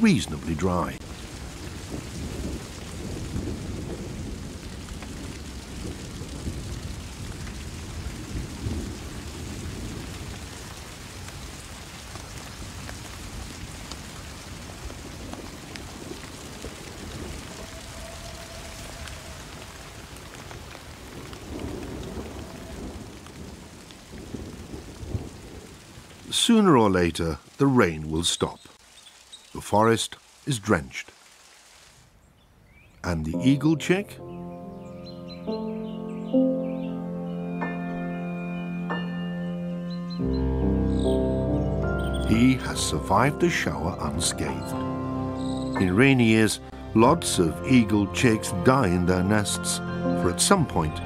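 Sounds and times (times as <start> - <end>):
thunder rumbling: 0.0 - 26.4
rain on foliage: 0.0 - 33.6, 40.8 - 51.0.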